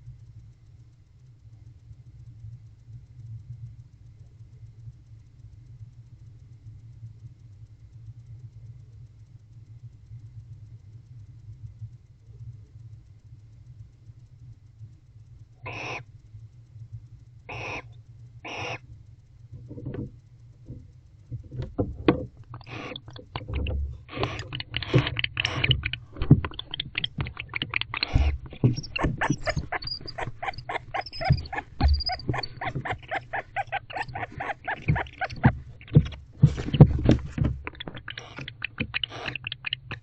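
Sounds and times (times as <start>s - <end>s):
owl hissing screeches: 15.7s - 16.0s, 17.5s - 18.8s, 22.5s - 23.1s, 24.1s - 36.6s, 37.6s - 40.0s
owls chittering and twittering: 15.7s - 16.0s, 17.5s - 18.8s, 22.5s - 40.0s
low thumps: 19.6s - 40.0s.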